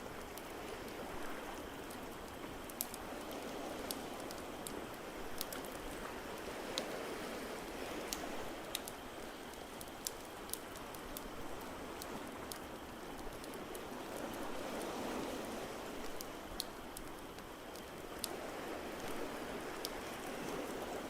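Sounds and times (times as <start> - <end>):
fire crackling and popping: 8.0 - 14.8, 15.9 - 20.0.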